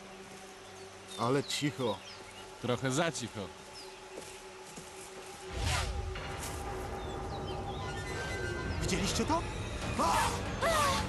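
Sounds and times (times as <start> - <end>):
tense background score: 0.0 - 11.0.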